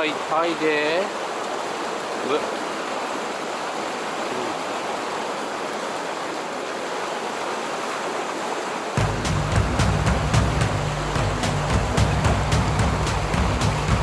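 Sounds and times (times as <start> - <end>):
water rushing over rocks: 0.0 - 14.0
background music with low beat: 9.0 - 14.0.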